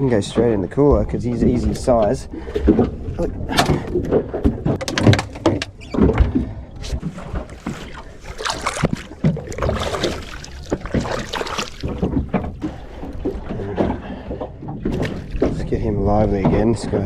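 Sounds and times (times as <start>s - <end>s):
knocks and clatter on boat: 0.0s - 17.0s
water wash: 7.0s - 17.0s.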